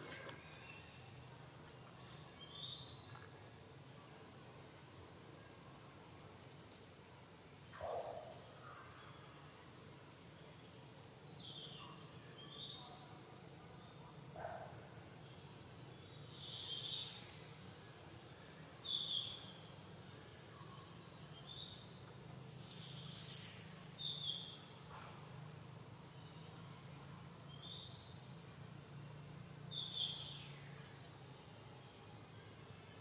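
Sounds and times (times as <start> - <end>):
faint steady hum: 0.0 - 33.0
birds chirping: 13.9 - 17.6, 18.3 - 26.6.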